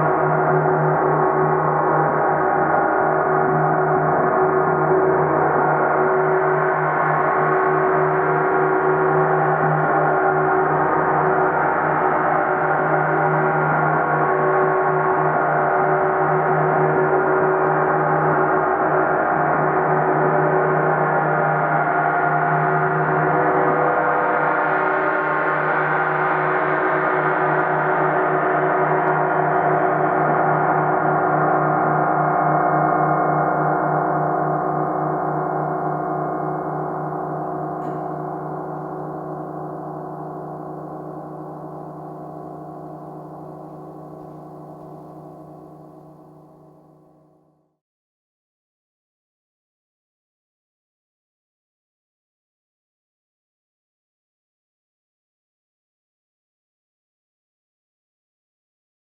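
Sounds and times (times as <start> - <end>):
gong sounding: 35.9 - 45.3.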